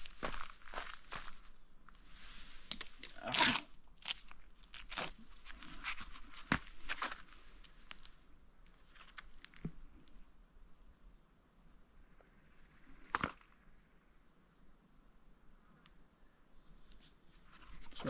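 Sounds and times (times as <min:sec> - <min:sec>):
footsteps on sandy ground: 0:00.0 - 0:02.7, 0:04.8 - 0:08.2
insects chirring: 0:00.0 - 0:18.0.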